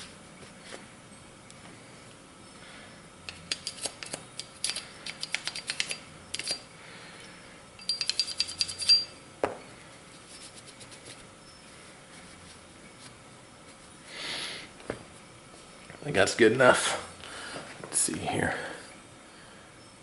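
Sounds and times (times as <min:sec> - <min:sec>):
metal gun parts clicking and scratching: 0:03.3 - 0:06.7, 0:07.8 - 0:09.1.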